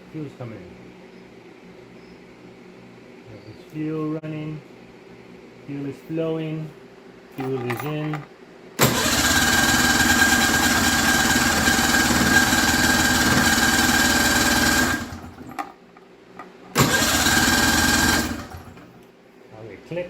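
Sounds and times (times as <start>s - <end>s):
snowmobile engine cranking: 8.8s - 15.6s, 16.8s - 18.8s.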